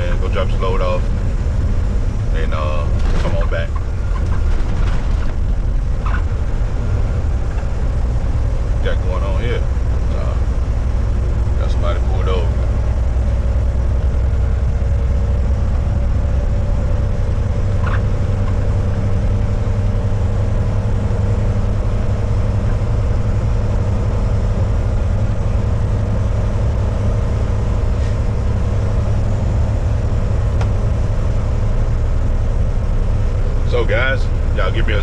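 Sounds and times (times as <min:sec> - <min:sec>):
truck diesel engine droning: 0:00.0 - 0:35.0
tyres on the road: 0:00.0 - 0:35.0.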